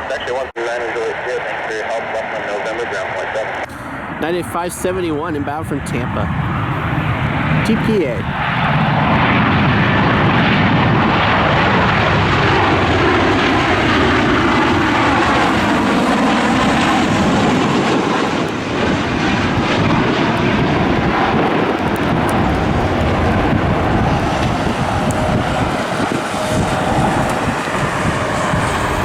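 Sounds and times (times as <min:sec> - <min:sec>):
aircraft engines roaring: 0:00.0 - 0:29.0.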